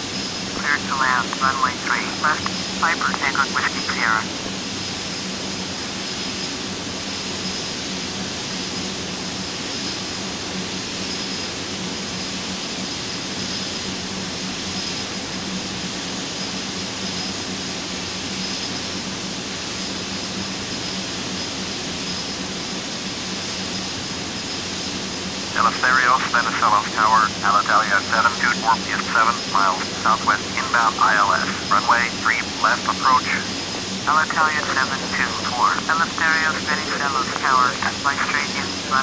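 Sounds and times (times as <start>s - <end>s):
jet engine and airflow noise: 0.0s - 39.0s
faint low hum: 0.4s - 4.5s, 25.5s - 39.0s.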